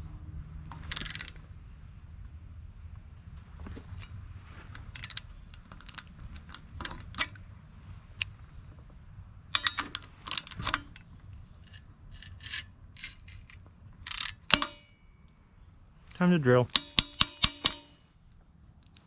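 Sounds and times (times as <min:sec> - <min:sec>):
low steady hum: 0:00.0 - 0:19.0
small metal tools clinking: 0:00.8 - 0:01.3, 0:09.6 - 0:14.9.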